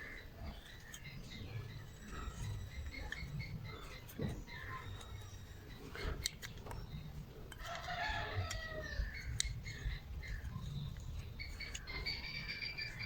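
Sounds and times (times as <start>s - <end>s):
sharp clicks: 2.5s - 13.0s
rooster crowing: 7.6s - 9.3s.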